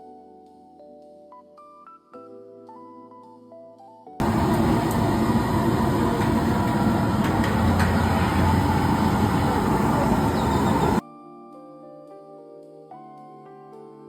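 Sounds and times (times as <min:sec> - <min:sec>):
soft background music: 0:00.0 - 0:04.2, 0:08.4 - 0:14.0
loud steady rumbling: 0:04.2 - 0:11.0.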